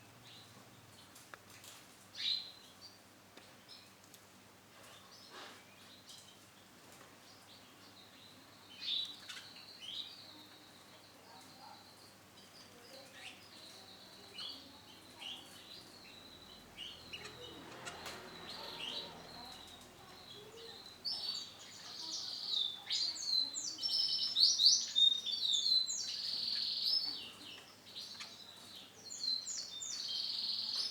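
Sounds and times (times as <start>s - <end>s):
canary chirping: 8.2s - 30.9s.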